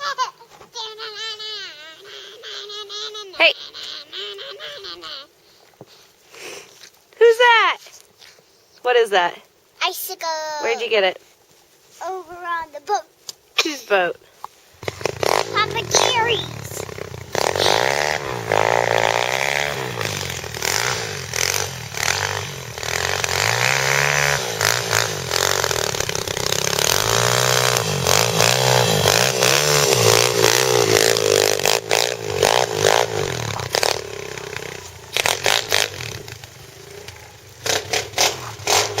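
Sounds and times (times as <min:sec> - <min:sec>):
pit bike engine revving: 0:14.8 - 0:39.0.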